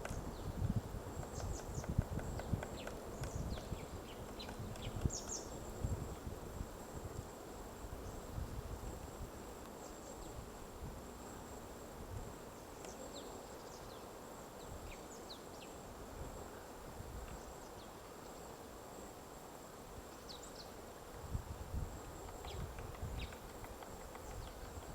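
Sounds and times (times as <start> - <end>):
low wind rumble: 0.1 - 9.3.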